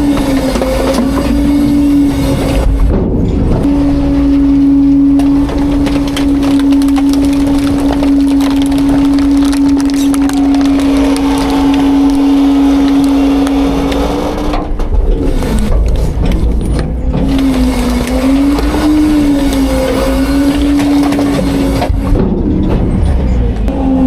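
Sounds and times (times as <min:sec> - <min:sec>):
refuse cracking and crunching: 0:00.0 - 0:22.8
high hydraulic whine: 0:09.0 - 0:24.0.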